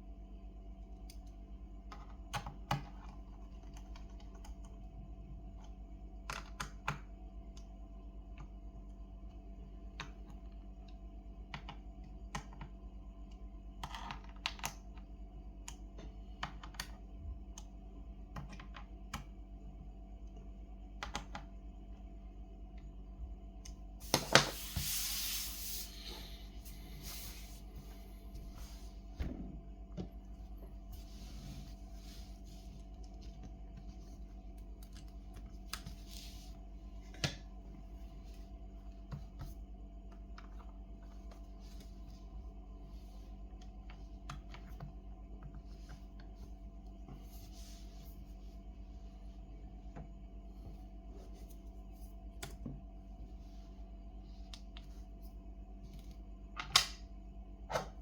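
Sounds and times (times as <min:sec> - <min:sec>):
low electrical hum: 0:00.0 - 0:58.0.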